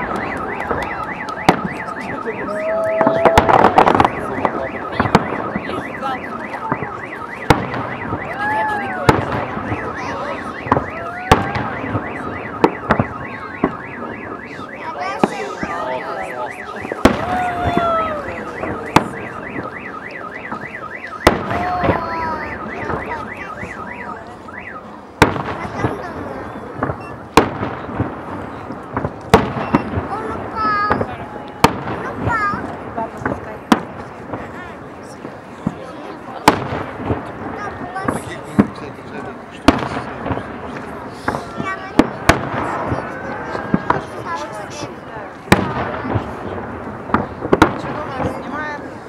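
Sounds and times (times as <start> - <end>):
electronic alarm wailing: 0.0 - 24.9
fireworks bangs: 0.0 - 49.0
fireworks crackling: 0.0 - 49.0.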